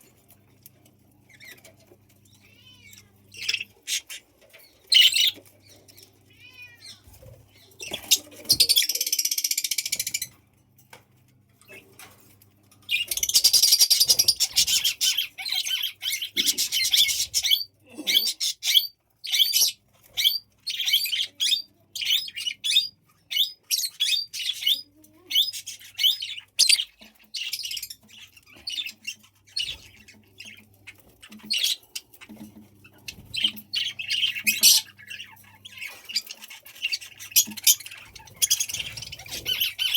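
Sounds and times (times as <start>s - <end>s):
budgerigars warbling chatter: 2.8s - 6.0s, 12.9s - 39.9s.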